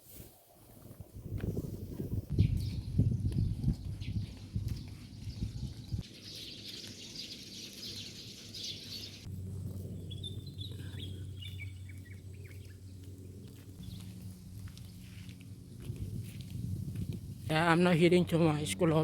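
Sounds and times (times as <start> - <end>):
birds chirping: 2.4 - 15.4.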